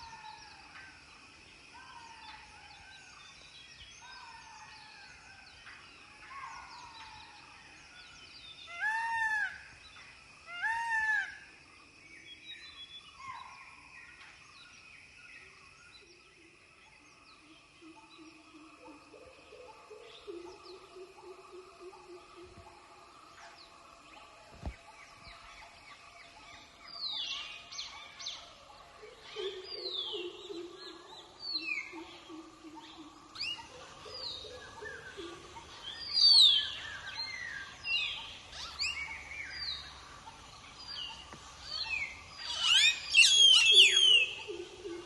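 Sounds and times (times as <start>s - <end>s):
birds calling in a chorus: 29.2s - 45.0s.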